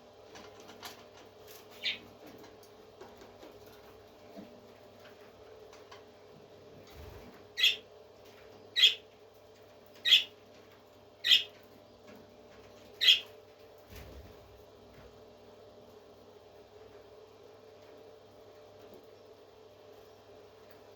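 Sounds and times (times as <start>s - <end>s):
faint steady hum: 0.0s - 20.9s
parrot squawking: 7.6s - 7.8s, 8.8s - 9.0s, 10.0s - 10.3s, 11.2s - 11.5s, 13.0s - 13.3s.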